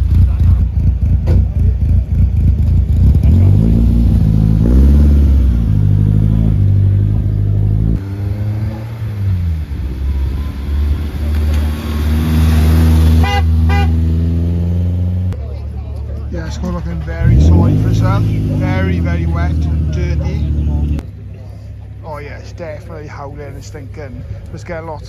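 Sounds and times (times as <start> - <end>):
car engines revving: 0.0 - 25.0
car driving past: 3.2 - 15.4.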